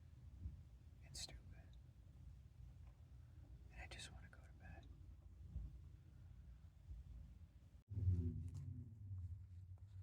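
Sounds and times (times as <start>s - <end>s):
faint pitched hum: 0.0s - 10.0s
vehicle engine rumble: 7.9s - 10.0s.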